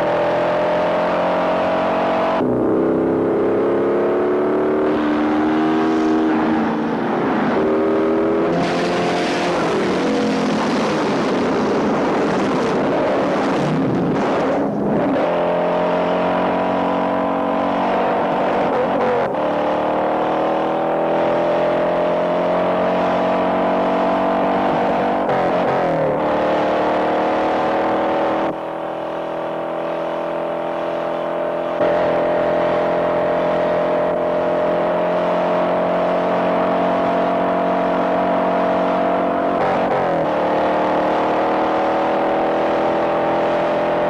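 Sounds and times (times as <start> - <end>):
car engines at full throttle: 0.0 - 44.0.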